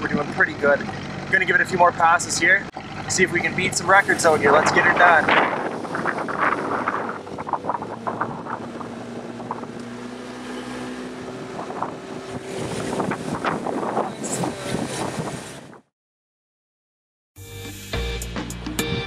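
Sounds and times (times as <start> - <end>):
boat motor humming: 0.0 - 15.9
wind buffeting microphone: 3.5 - 15.9.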